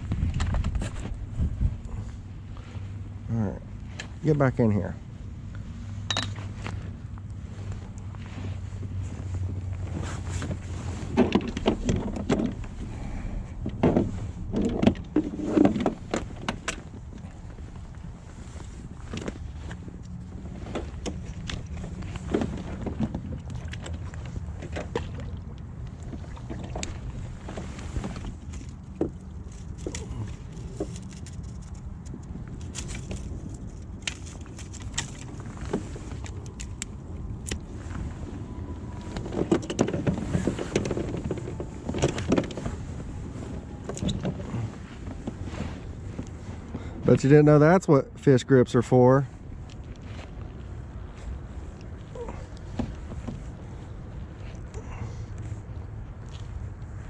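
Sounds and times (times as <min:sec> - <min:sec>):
low rumble of creek: 0:00.0 - 0:57.0
handling noise clicks and knocks: 0:06.0 - 0:06.8, 0:10.4 - 0:12.8, 0:13.5 - 0:38.2, 0:38.9 - 0:46.8.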